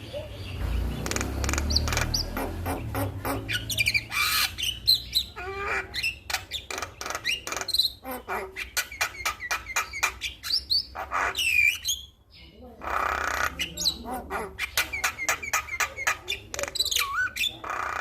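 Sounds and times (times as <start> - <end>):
bird singing with clicks and whistles: 0.0 - 5.4, 8.6 - 12.2.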